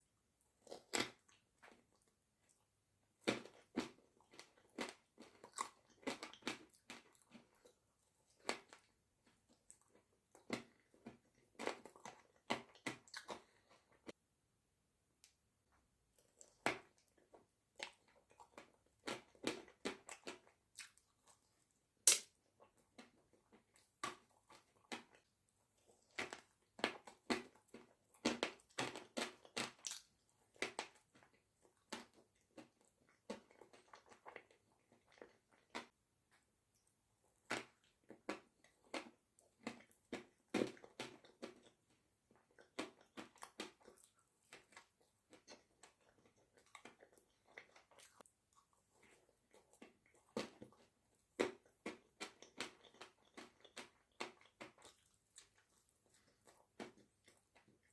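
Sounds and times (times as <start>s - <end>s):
biting and sticky chewing: 37.5s - 57.9s.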